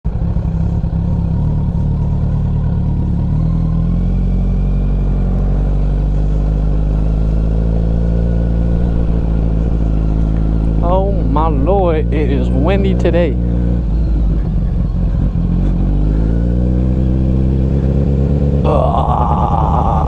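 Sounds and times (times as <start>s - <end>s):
motorcycle engine running steadily: 0.0s - 20.0s.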